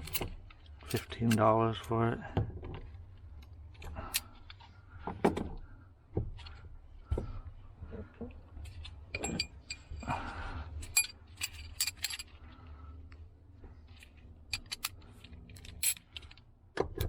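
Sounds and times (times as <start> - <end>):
metal tool clinking on metal: 9.1 - 10.0.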